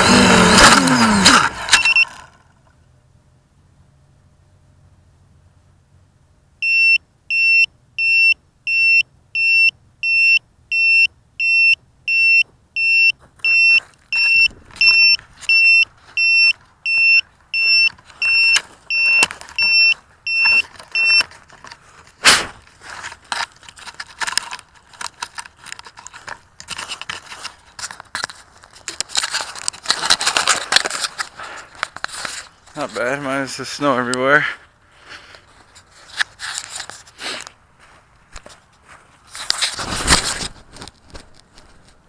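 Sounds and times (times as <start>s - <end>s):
electronic buzzer beeping: 0.0s - 2.1s, 6.6s - 21.2s
crackling rustling handling noises: 13.3s - 42.0s.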